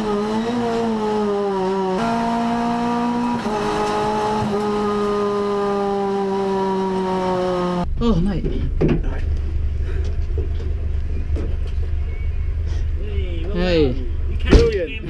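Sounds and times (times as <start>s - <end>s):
race car engine from inside: 0.0s - 7.9s.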